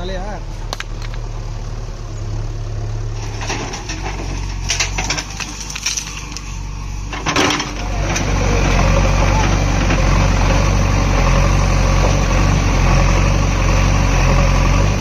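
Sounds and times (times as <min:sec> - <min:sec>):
diesel engine running: 0:00.0 - 0:15.0
soil and stones clattering: 0:03.2 - 0:10.2.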